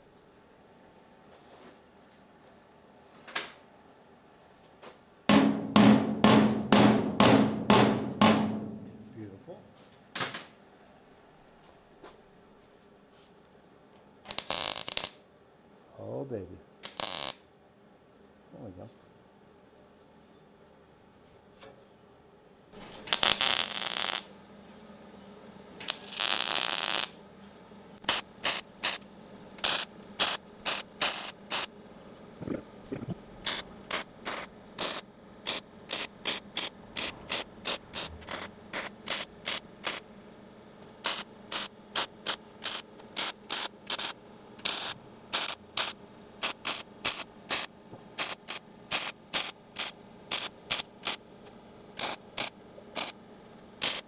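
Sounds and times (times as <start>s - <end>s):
welder crackling tack welds: 14.3s - 15.2s, 16.8s - 17.4s, 22.9s - 24.3s, 25.8s - 27.2s, 28.0s - 29.0s, 29.6s - 31.7s, 33.4s - 40.0s, 41.0s - 51.2s, 52.0s - 53.2s, 53.8s - 54.0s.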